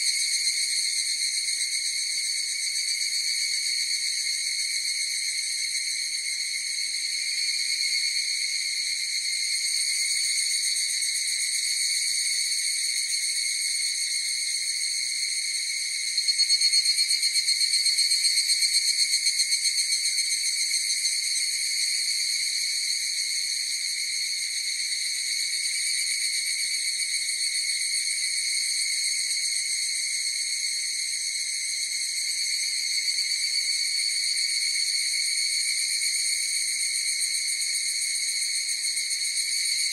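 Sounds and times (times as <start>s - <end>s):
cicada chorus ringing drone: 0.0s - 39.9s
nearer cicada call pulsing: 12.2s - 39.9s.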